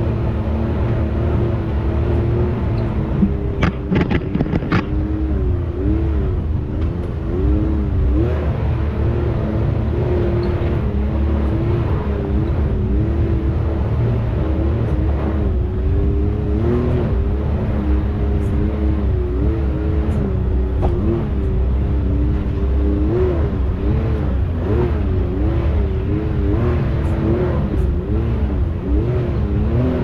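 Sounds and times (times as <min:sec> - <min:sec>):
off-road vehicle engine: 0:00.0 - 0:30.0
sharp knocks: 0:03.2 - 0:05.0.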